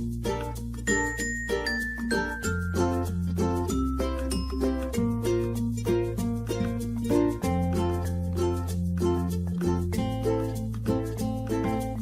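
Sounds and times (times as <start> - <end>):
music with plucked notes and bass: 0.0 - 12.0.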